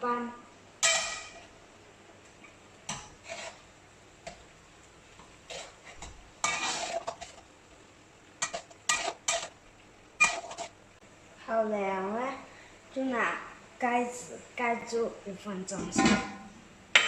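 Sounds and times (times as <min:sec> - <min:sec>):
spoon scraping metal pot: 0:02.9 - 0:03.7, 0:05.5 - 0:07.4, 0:08.4 - 0:09.6, 0:10.2 - 0:10.7.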